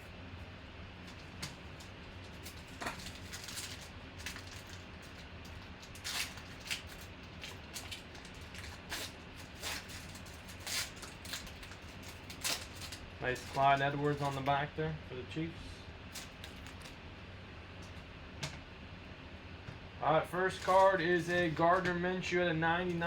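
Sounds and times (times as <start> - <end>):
low steady hum: 0.0 - 23.0
cards scraping and clicking: 5.5 - 14.6, 16.1 - 17.0, 20.5 - 22.0.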